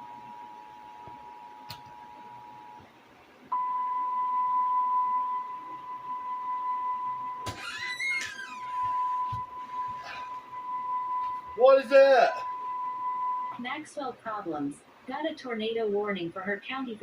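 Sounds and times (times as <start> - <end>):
single steady alarm tone: 3.5 - 7.5, 8.6 - 13.6.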